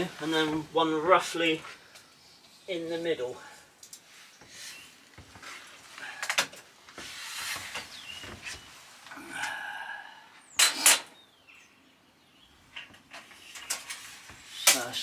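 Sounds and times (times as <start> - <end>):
tape measure scraping on plywood: 7.0 - 8.0.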